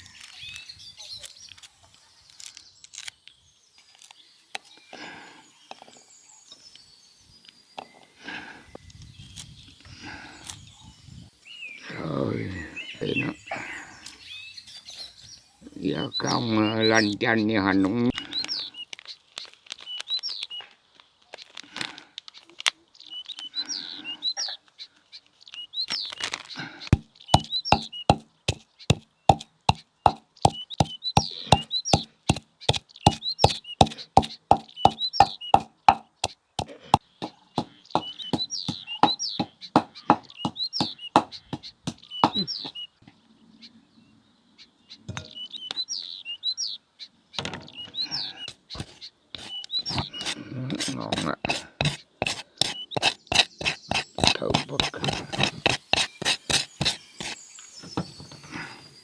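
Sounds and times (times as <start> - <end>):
small birds chirping: 0.0 - 57.9
quick even knocks: 27.4 - 41.3.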